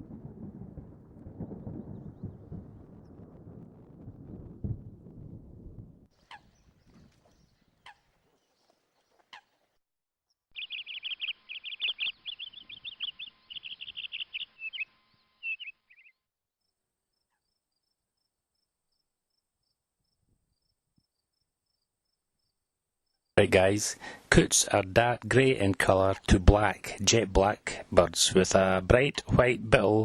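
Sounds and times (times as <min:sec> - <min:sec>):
bird chirping rapidly: 0:10.5 - 0:16.2
faint high chirps: 0:10.5 - 0:16.2.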